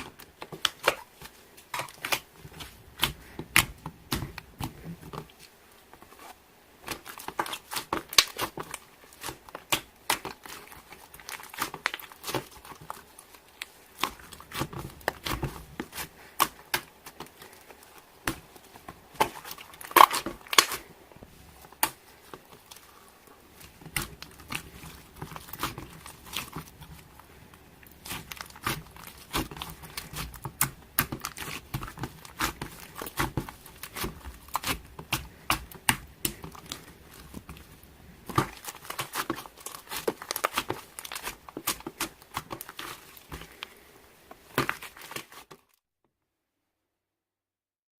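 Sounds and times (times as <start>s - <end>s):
slime squished by hand: 6.8s - 20.9s, 27.8s - 43.6s.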